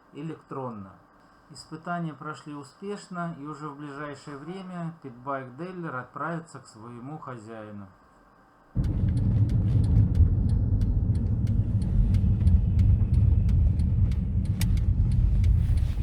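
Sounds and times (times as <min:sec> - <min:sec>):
low steady rumble: 0:08.8 - 0:16.0
sharp clicks: 0:08.8 - 0:16.0.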